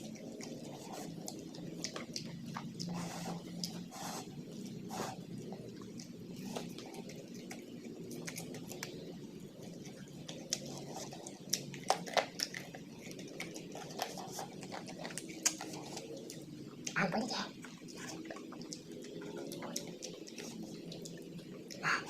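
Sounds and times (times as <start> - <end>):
low background noise: 0.0 - 22.0
person chewing food: 0.0 - 22.0
wet smacks and clicks: 10.2 - 17.0.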